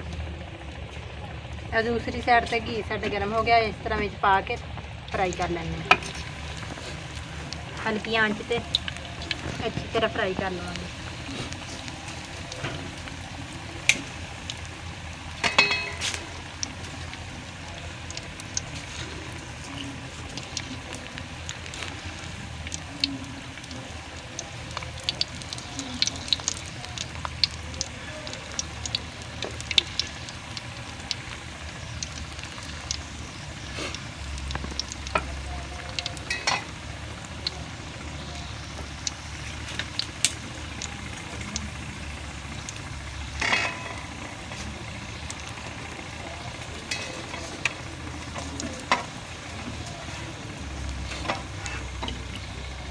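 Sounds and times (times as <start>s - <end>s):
food sizzling with crackles and pops: 0.0s - 52.9s
utensil clinking: 15.4s - 16.2s.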